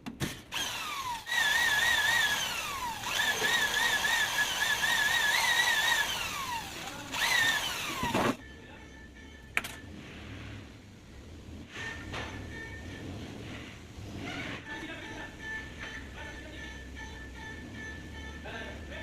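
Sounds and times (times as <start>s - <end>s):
electric drill whining: 0.5s - 8.4s.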